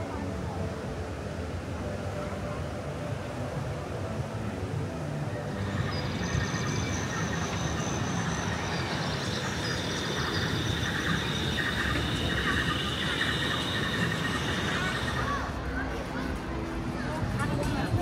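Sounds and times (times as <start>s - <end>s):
rail vehicle rumbling: 5.0s - 18.0s
high whining tones: 5.8s - 15.5s.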